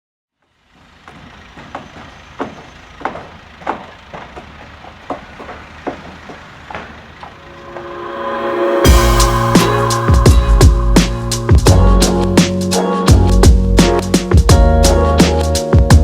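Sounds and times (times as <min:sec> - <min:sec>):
hammering knocks and bangs: 0:01.0 - 0:07.4
low rumble: 0:07.4 - 0:12.4
music: 0:07.5 - 0:16.0.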